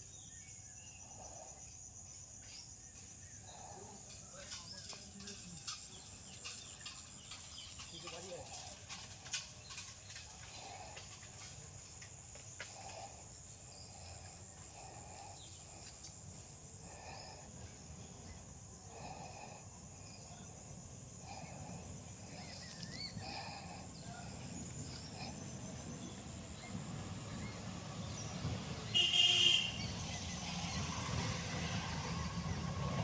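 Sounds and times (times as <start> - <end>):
high insect hiss: 0.0 - 33.0
bird chirps: 22.3 - 25.3.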